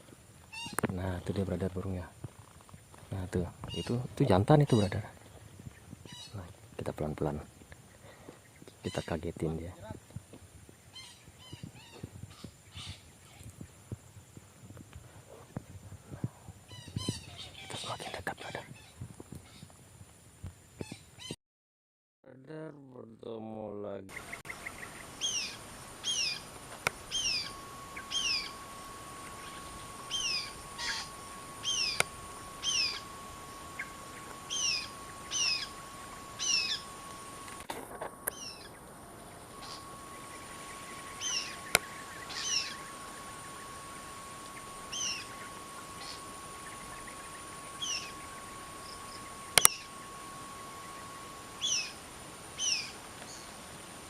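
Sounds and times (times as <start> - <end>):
steady high tone hum: 0.0 - 21.3, 22.4 - 54.0
parakeet calling: 0.5 - 1.6, 3.6 - 6.4, 8.5 - 9.4, 10.9 - 13.5, 16.7 - 19.7, 24.1 - 37.6, 38.2 - 53.7
sharp clicks: 31.9 - 32.1, 49.5 - 49.8.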